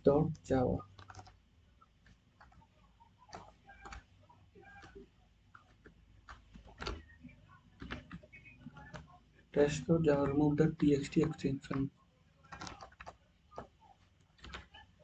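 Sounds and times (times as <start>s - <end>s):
computer mouse clicks: 0.9s - 1.4s, 12.5s - 14.8s.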